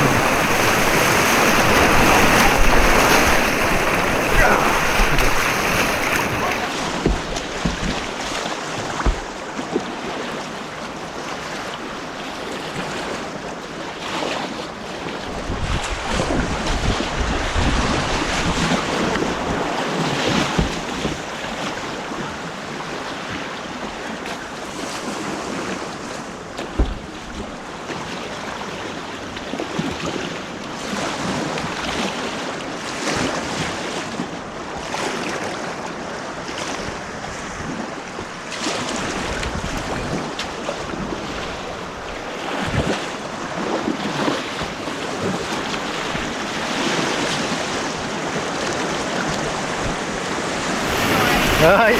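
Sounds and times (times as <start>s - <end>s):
wind buffeting microphone: 0.0s - 9.5s, 15.3s - 21.2s
rushing white water: 0.0s - 24.0s, 31.1s - 51.9s
low thuds: 2.6s - 8.2s, 8.8s - 9.4s.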